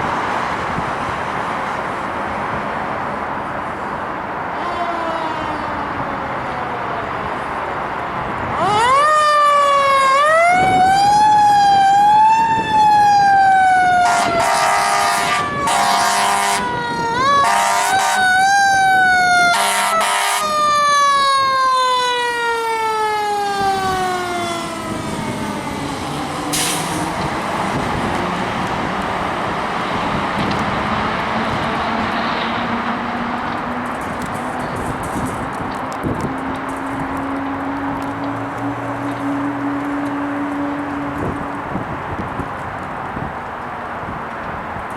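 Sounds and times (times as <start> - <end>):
road and engine noise: 0.0 - 44.9
air horn blasts: 13.9 - 18.5, 19.4 - 20.7.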